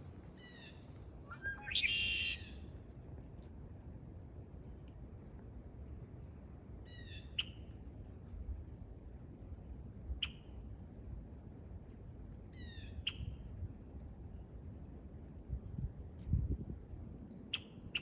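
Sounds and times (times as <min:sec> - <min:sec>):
bird harsh calls: 0:01.3 - 0:02.4.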